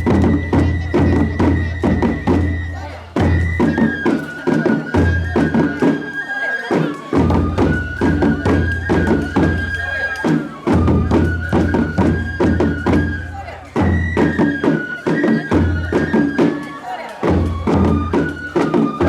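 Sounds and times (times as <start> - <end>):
low drum beats: 0.0 - 6.1, 6.8 - 19.0
bamboo flute long sliding notes: 0.0 - 19.0
sharp percussion strikes: 0.0 - 19.0.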